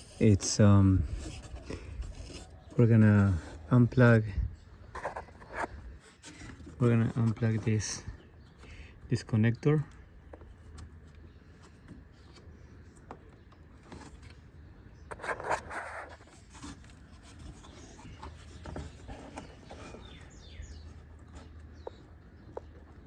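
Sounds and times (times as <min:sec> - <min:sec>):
plastic connector scraping rattle: 0:04.9 - 0:08.0.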